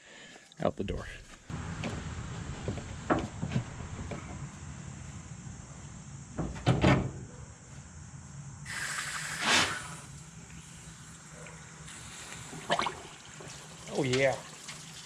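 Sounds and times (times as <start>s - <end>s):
water hissing through hose: 8.7s - 15.0s.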